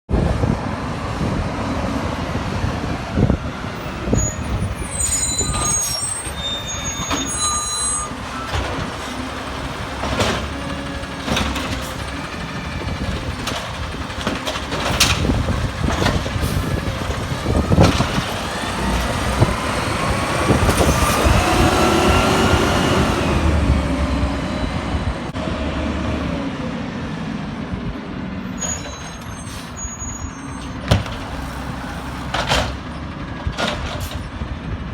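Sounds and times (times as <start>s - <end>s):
garbage truck engine running: 2.0s - 26.6s, 28.8s - 34.9s
sharp bangs: 30.7s - 33.9s.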